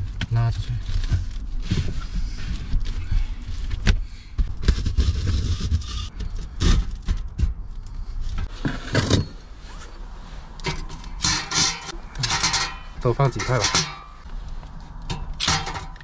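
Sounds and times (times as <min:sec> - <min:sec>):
rustling scrape: 0:00.6 - 0:07.2, 0:08.0 - 0:16.0
knocks and clunks of metal pipe: 0:10.6 - 0:14.2, 0:15.1 - 0:16.0.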